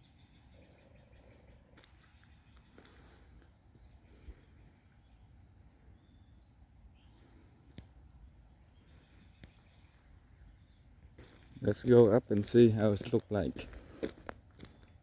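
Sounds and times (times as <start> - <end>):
birds chirping and whistling: 0.0 - 12.0.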